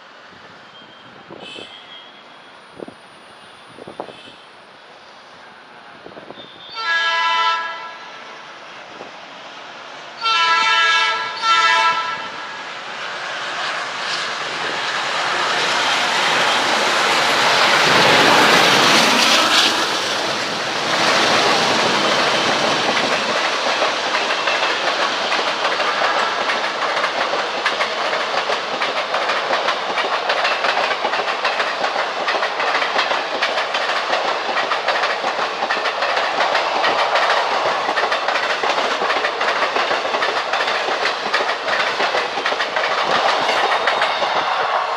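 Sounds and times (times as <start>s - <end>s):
train passing at speed: 0.0s - 44.9s
locomotive horn blasts: 6.6s - 8.0s, 10.2s - 12.4s
wheels clattering over rail joints: 15.0s - 44.6s.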